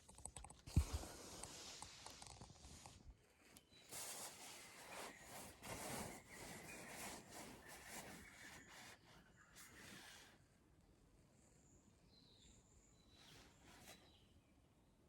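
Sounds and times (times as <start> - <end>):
faint rubbing and scraping: 0.7 - 10.4, 13.2 - 14.2.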